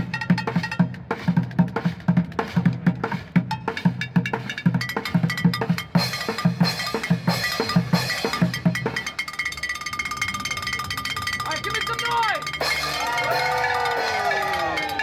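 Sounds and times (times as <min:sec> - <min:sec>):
drum beat: 0:00.0 - 0:10.2, 0:11.1 - 0:15.0
steady ringing tone: 0:08.6 - 0:15.0.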